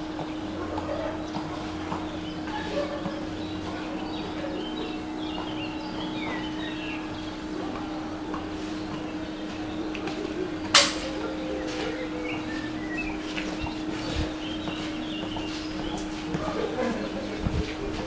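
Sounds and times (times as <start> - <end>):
steady low hum: 0.0 - 18.0
small birds chirping: 0.1 - 18.0.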